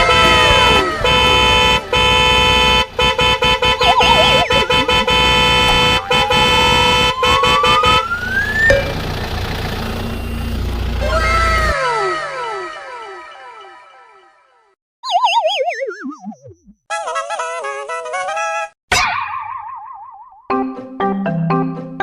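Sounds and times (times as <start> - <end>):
horn and siren sound effects: 0.0 - 9.4.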